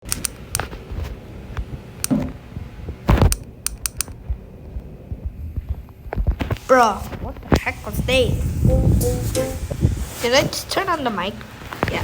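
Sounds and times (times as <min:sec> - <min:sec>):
sharp clicks and taps: 0:00.0 - 0:00.7, 0:03.2 - 0:04.2.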